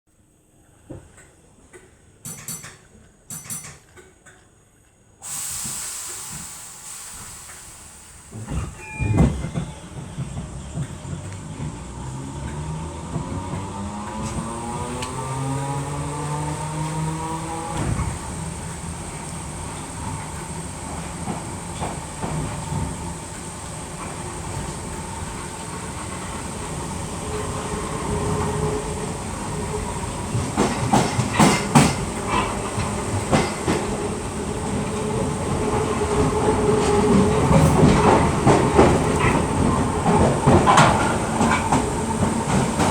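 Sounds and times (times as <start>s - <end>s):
train thump: 5.6s - 11.8s, 13.1s - 18.9s, 30.3s - 32.1s
train wheels clattering: 5.6s - 42.9s
traction motor whine: 13.6s - 18.2s.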